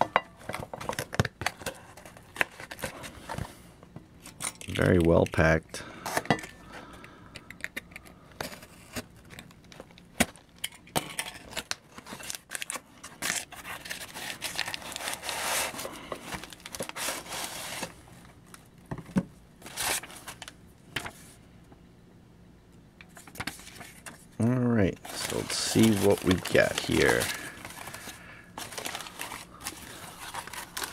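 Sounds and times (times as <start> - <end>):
packing material rustling: 11.2 - 18.6, 19.6 - 21.2, 25.0 - 30.9.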